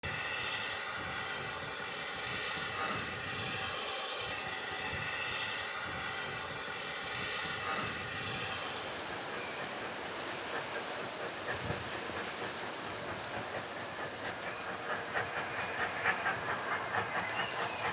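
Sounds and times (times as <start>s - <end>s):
engine drone: 8.3s - 17.9s.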